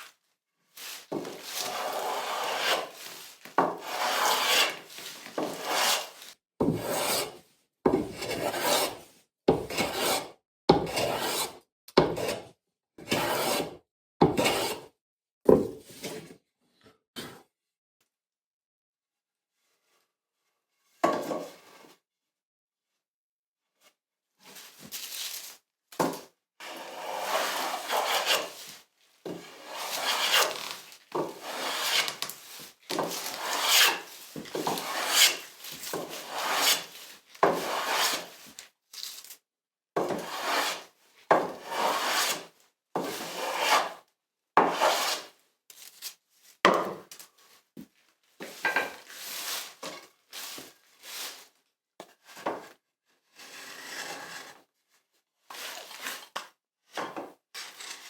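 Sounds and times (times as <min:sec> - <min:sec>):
hand tool rasping on wood: 0:01.6 - 0:02.9, 0:03.8 - 0:04.8, 0:05.5 - 0:06.1, 0:29.6 - 0:30.6, 0:31.4 - 0:32.3, 0:33.0 - 0:36.9, 0:37.5 - 0:38.3, 0:43.3 - 0:43.9.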